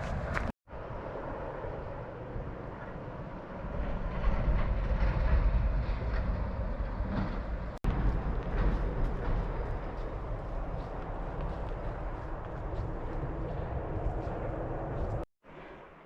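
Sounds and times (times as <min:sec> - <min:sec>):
wind buffeting microphone: 0:00.0 - 0:15.3.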